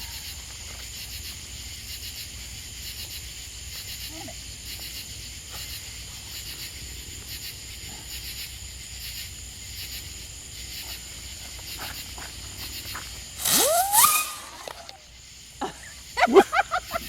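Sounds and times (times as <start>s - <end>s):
crickets chirping: 0.0s - 17.0s
firework hissing and whistling: 13.2s - 15.2s.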